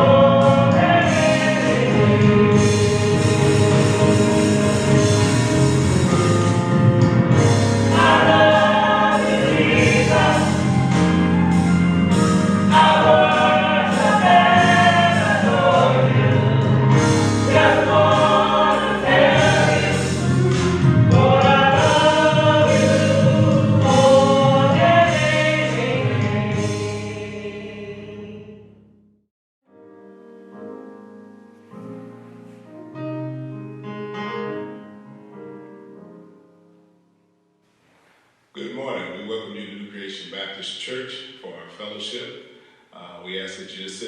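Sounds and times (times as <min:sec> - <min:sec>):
choir singing gospel music: 0:00.0 - 0:28.7
bass and chord accompaniment: 0:00.0 - 0:29.0, 0:29.8 - 0:37.1.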